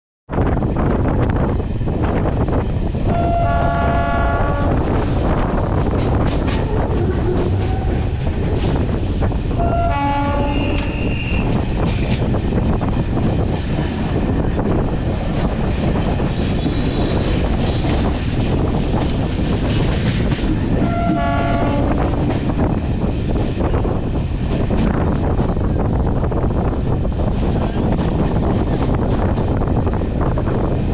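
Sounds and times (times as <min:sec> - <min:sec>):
train rumbling past: 0:00.3 - 0:30.9
train horn blasts: 0:03.1 - 0:05.0, 0:09.6 - 0:11.5, 0:20.8 - 0:22.2.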